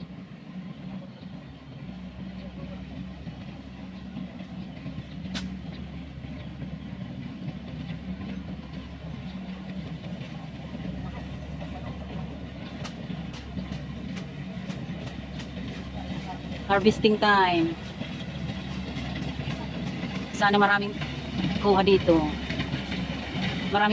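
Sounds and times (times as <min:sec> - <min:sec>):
combine harvester engine droning: 0:00.0 - 0:23.9.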